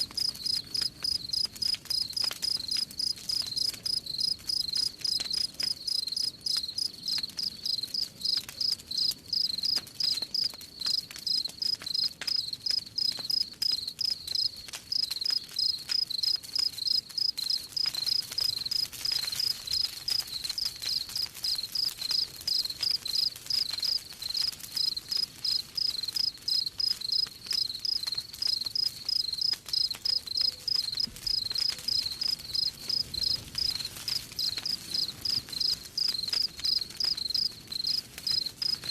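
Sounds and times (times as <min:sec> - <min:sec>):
wood fire crackling: 0:00.0 - 0:38.9
crickets chirping: 0:00.2 - 0:09.8, 0:14.0 - 0:18.8, 0:22.5 - 0:38.9.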